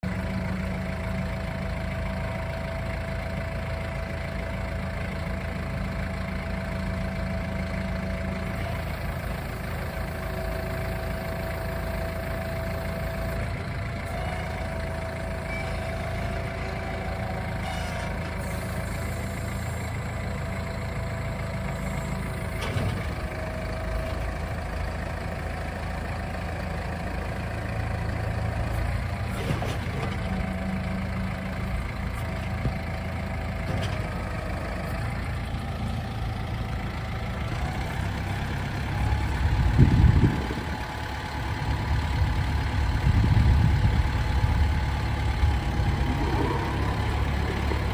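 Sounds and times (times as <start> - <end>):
tractor diesel engine idling: 0.0 - 47.9.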